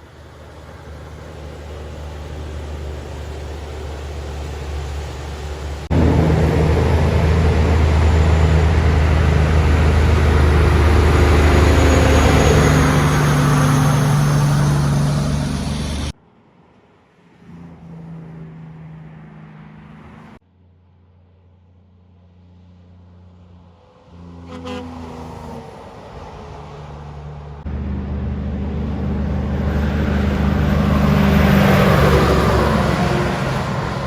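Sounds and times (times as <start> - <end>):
vehicle engine running: 0.0 - 16.1, 27.4 - 34.0.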